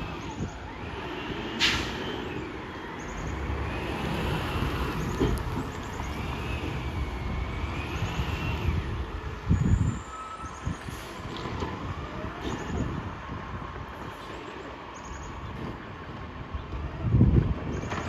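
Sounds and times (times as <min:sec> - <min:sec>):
traffic noise: 0:00.0 - 0:18.0
heavy truck passing: 0:01.4 - 0:09.3.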